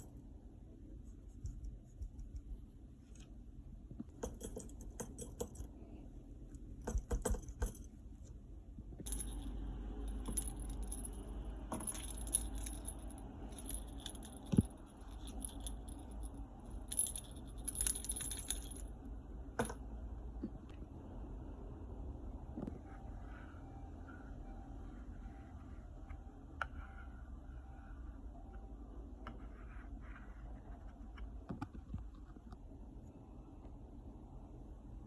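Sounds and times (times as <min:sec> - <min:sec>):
small metal objects jingling: 0:09.1 - 0:18.9.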